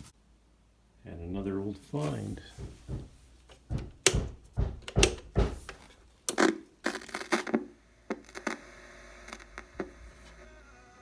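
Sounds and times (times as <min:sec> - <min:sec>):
household items knocking and clicking: 0:02.5 - 0:06.0.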